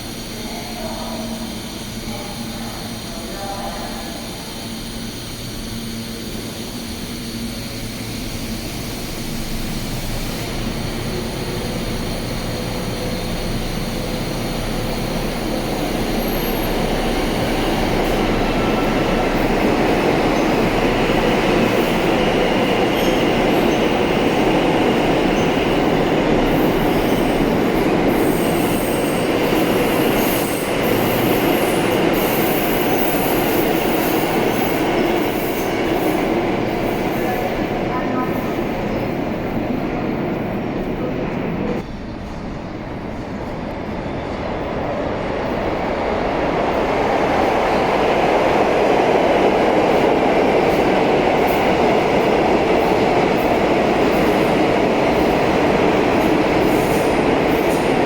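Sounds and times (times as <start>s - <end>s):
subway train rumble: 0.0s - 58.0s.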